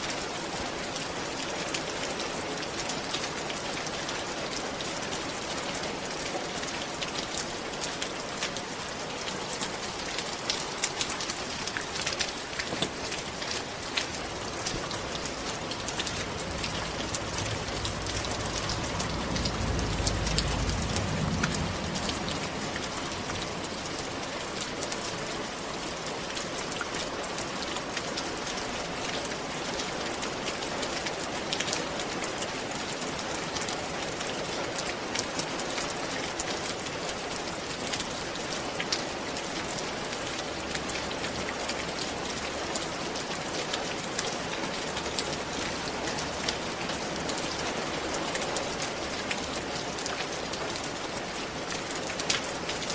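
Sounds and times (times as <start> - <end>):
rain falling on a roof: 0.0 - 52.9
low rumble: 14.1 - 24.8.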